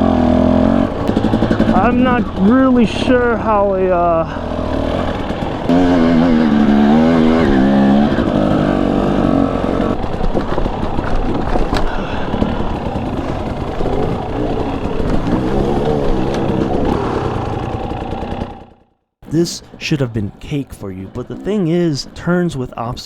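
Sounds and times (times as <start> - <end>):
dirt bike engine revving: 0.0 - 22.6.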